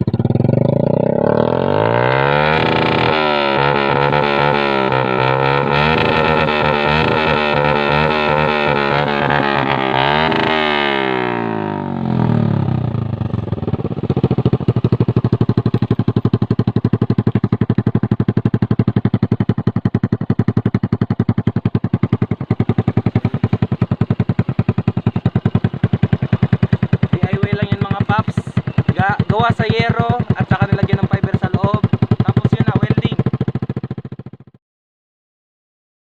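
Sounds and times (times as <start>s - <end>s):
motorcycle engine revving and idling: 0.0s - 34.6s.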